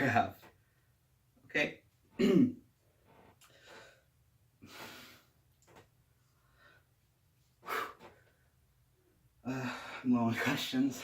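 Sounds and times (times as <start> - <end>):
man breathing heavily: 7.6 - 8.4.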